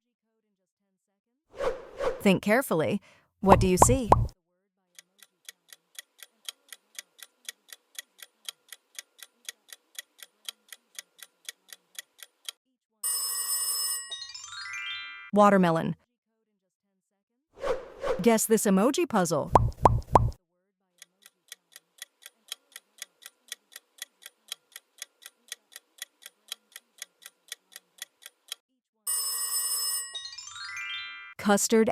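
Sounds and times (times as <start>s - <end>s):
countdown timer ticking: 3.4s - 4.4s, 19.5s - 20.4s
clock ticking timer: 3.5s - 4.4s, 5.0s - 12.6s, 19.5s - 20.4s, 21.0s - 28.6s.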